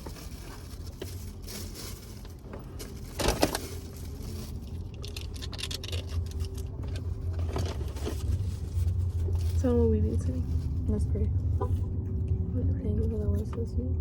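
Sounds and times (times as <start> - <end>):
paper bag and wrappers rustling: 0.0 - 11.2
low hum of car cabin: 0.0 - 14.0.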